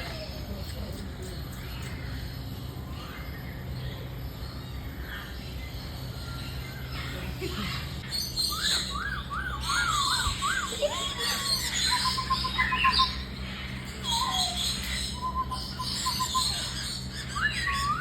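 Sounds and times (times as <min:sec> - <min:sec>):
bird chirping: 0:00.0 - 0:18.0
low background hum: 0:00.0 - 0:18.0.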